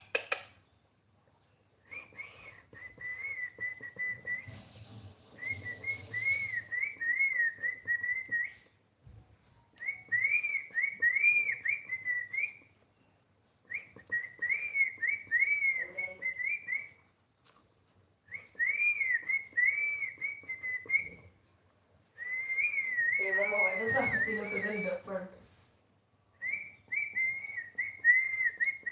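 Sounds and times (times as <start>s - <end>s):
cockatiel whistling a tune: 1.8s - 8.7s, 9.8s - 12.7s, 13.7s - 17.0s, 18.3s - 21.3s, 22.2s - 25.2s, 26.4s - 28.9s.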